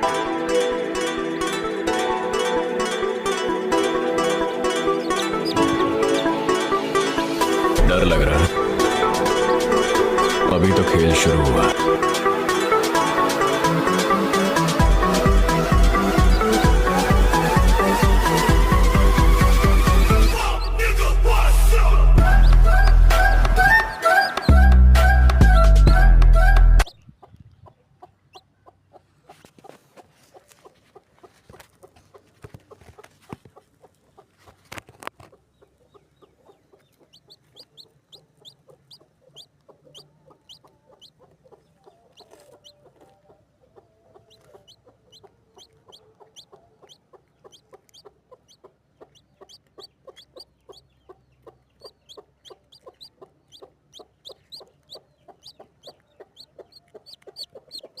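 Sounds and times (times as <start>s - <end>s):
pigeons calling: 4.2s - 20.8s, 22.2s - 25.6s, 43.8s - 58.0s.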